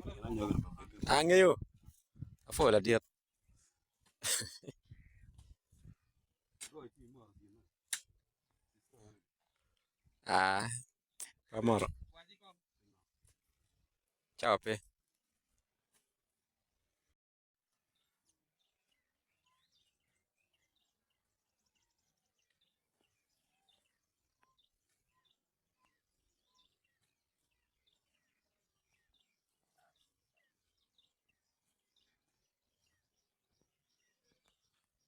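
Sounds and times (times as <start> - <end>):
faint bird chirps: 18.0 - 35.0.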